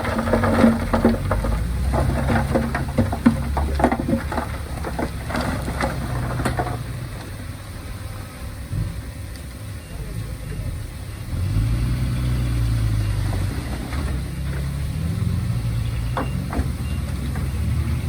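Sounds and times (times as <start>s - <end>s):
soil and stones clattering: 0.0s - 7.5s, 12.6s - 18.0s
diesel machinery engine rumble: 0.0s - 18.0s.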